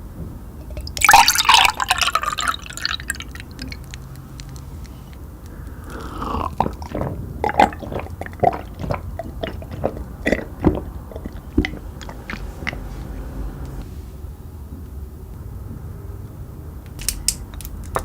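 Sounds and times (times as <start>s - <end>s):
wet squishing of food: 0.6s - 4.2s, 5.5s - 13.4s.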